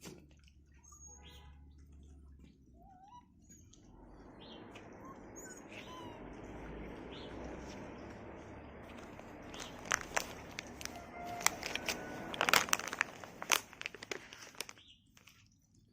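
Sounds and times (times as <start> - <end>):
puppies squeaking and whimpering: 0.7 - 1.7, 2.7 - 7.9
rustling noise: 8.8 - 15.4.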